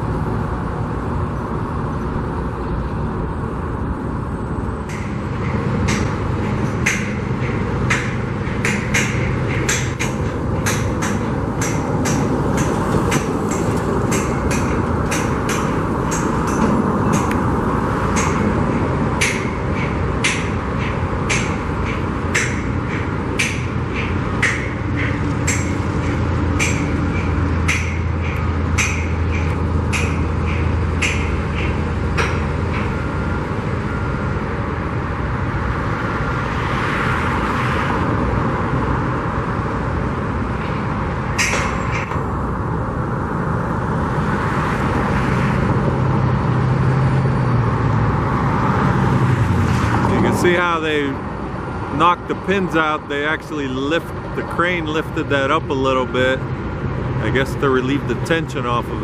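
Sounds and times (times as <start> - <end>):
construction machinery running: 0.0 - 36.6, 37.3 - 59.0
sledgehammer clanking on steel: 4.9 - 33.1, 41.3 - 42.2.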